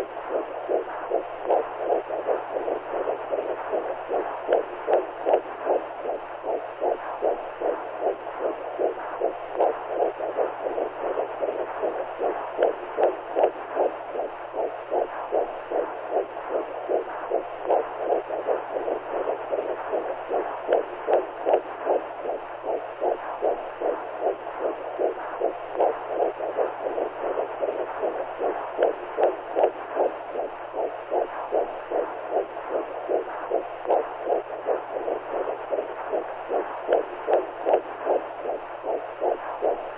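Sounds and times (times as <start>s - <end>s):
whooshing heartbeat pulses: 0.0s - 39.9s.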